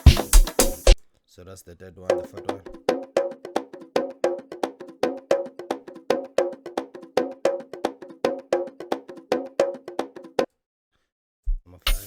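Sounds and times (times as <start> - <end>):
pitched percussion loop: 0.0 - 1.0, 2.1 - 10.5.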